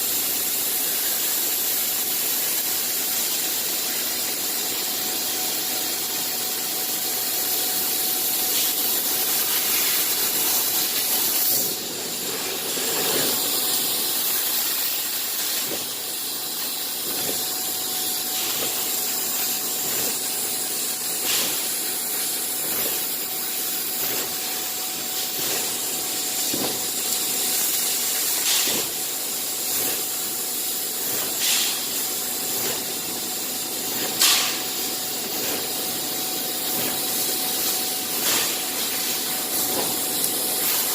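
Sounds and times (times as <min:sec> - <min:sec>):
cutting machine hissing: 0:09.1 - 0:40.9.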